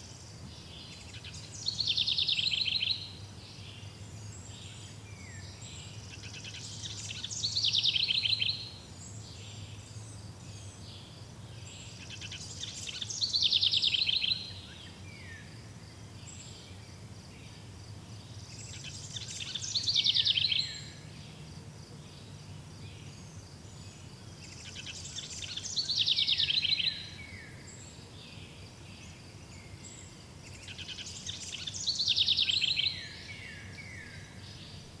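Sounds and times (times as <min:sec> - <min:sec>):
faint insects chirring: 0:00.0 - 0:35.0
songbird singing: 0:00.0 - 0:35.0.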